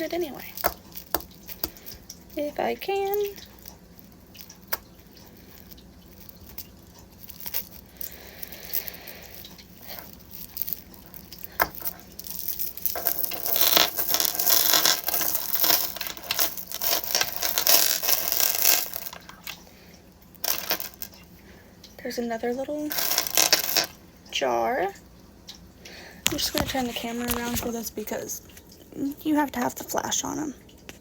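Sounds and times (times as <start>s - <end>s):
plastic bag crinkling: 2.9s - 19.6s, 22.9s - 23.9s, 26.2s - 29.7s
crystal chips clinking: 5.5s - 19.6s, 20.4s - 21.2s, 22.9s - 23.9s.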